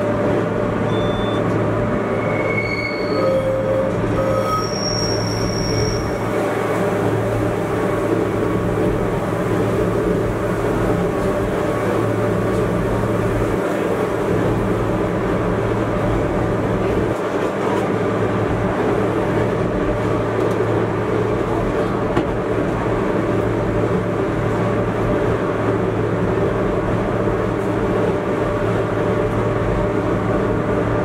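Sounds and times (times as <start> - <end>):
train running rumble: 0.0 - 31.0
thin high squeal: 2.1 - 6.2.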